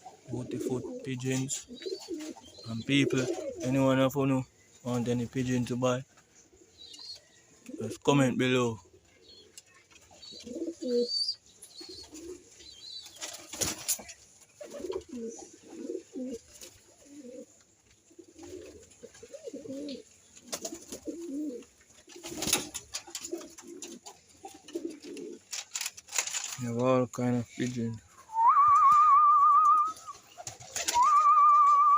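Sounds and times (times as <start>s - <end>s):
pigeons cooing: 0.0s - 4.2s, 8.7s - 14.0s, 14.6s - 25.9s, 28.2s - 31.9s.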